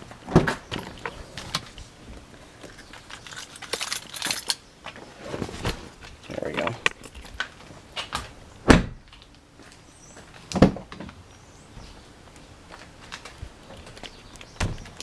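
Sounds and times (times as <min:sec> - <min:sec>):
light clicks and rattles: 0:02.6 - 0:04.6.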